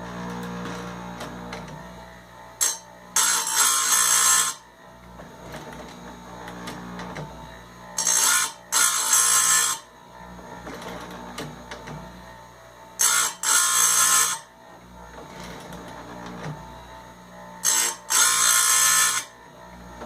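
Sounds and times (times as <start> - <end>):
electric motor humming: 0.0 - 20.0
grinding wheel on chain: 2.6 - 4.6, 8.0 - 9.9, 13.0 - 14.5, 17.6 - 19.4.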